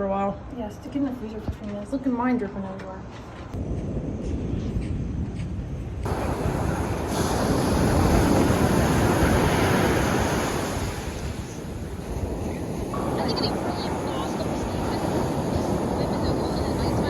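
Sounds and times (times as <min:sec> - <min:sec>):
wind: 0:00.0 - 0:17.0
surf rushing: 0:06.1 - 0:17.0.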